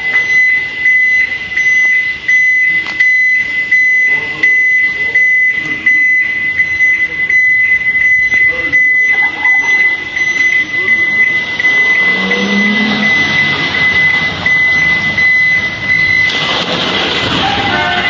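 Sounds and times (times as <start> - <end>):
high-pitched electronic warning tone: 0.0 - 16.4, 17.3 - 18.0
loud rushing noise: 11.3 - 18.0.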